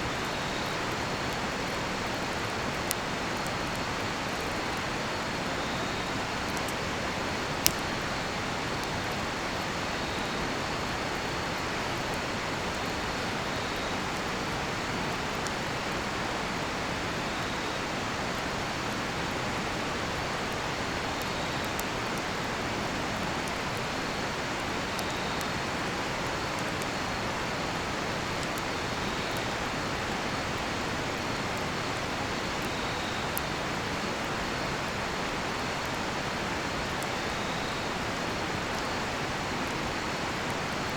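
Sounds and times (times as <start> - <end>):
campfire crackling: 0.0 - 40.9
crickets trilling: 0.0 - 40.9
insect chirping: 4.2 - 6.8, 28.2 - 34.0, 35.9 - 40.3.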